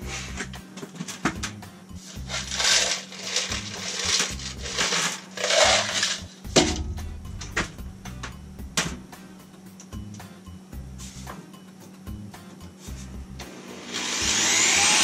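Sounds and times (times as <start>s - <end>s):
metal pipe rattling and scraping: 2.0s - 9.0s.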